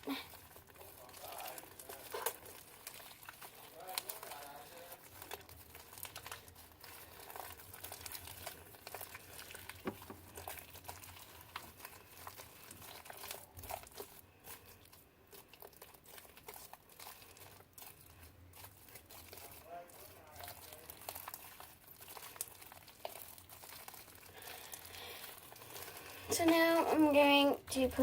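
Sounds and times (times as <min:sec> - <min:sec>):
slime squished sticky crackling: 0:00.0 - 0:28.0.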